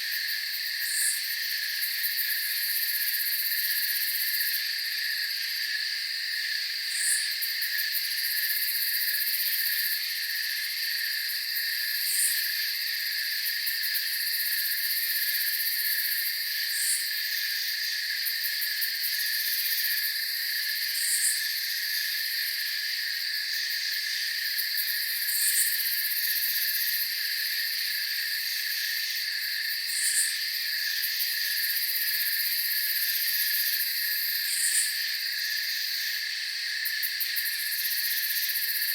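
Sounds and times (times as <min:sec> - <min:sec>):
crickets and insects trilling: 0:00.0 - 0:38.9.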